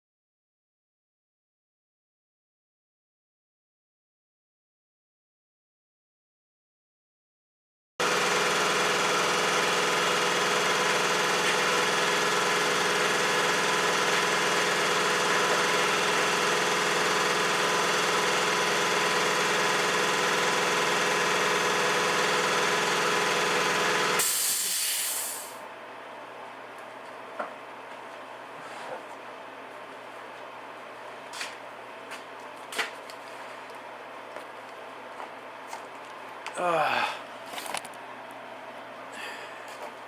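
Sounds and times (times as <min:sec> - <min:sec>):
spray gun hissing: 0:24.2 - 0:25.6.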